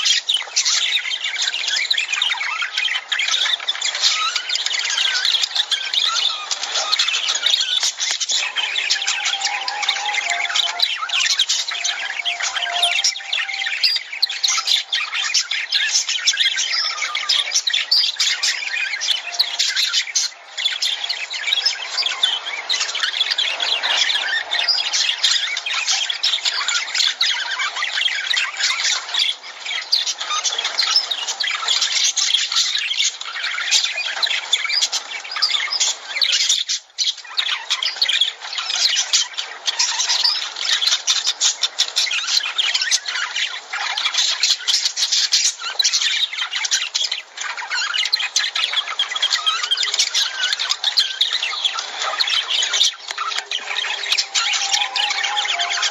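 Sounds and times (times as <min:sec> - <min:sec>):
lovebirds squawking and chirping: 0:01.1 - 0:26.7, 0:36.8 - 0:55.9.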